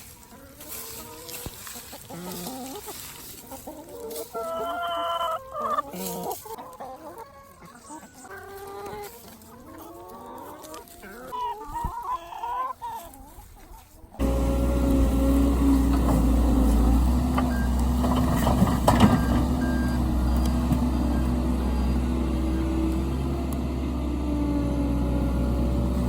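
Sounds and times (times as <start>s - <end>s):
hens clucking: 0.0s - 26.0s.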